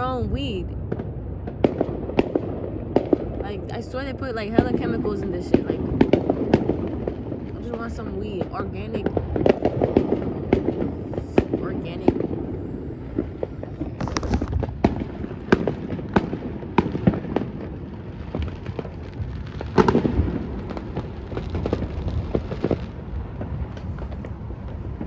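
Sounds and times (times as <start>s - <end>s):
fireworks bangs and crackles: 0.0s - 25.0s
low rumble of booms: 0.0s - 25.0s.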